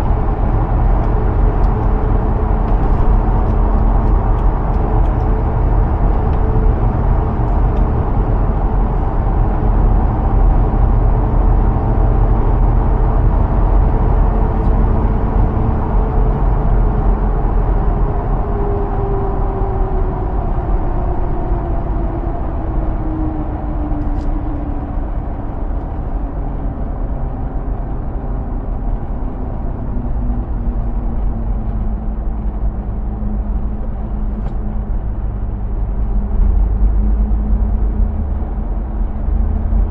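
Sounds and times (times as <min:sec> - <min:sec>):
vehicle engine and road rumble: 0:00.0 - 0:39.9.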